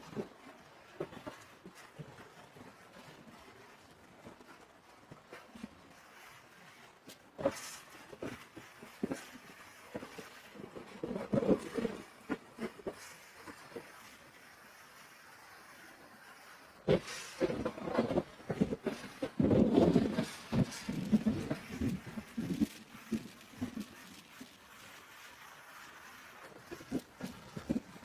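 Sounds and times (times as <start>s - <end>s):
muffled knocks and rustles: 16.8s - 28.0s.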